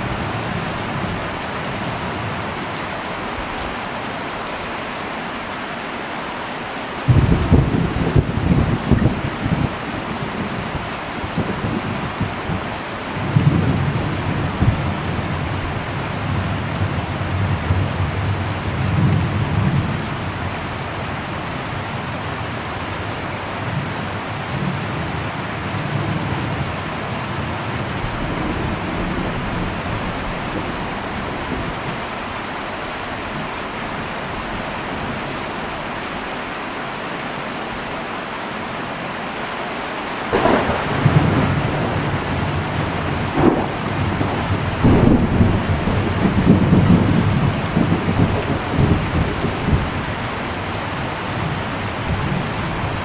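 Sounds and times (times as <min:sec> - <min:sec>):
heavy rain on metal roof: 0:00.0 - 0:53.0
thunder rumbling: 0:07.1 - 0:23.1, 0:40.2 - 0:53.0.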